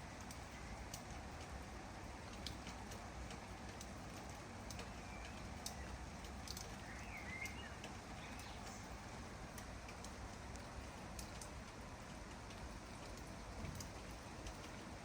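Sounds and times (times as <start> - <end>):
raindrops ticking close by: 0.0 - 15.0
steady rain falling: 0.0 - 15.0
bird chirping: 6.8 - 8.9.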